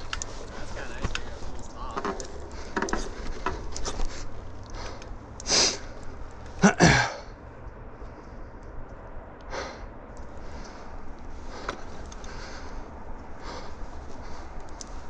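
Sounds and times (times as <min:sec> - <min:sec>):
person breathing and sniffing: 0:02.2 - 0:06.0.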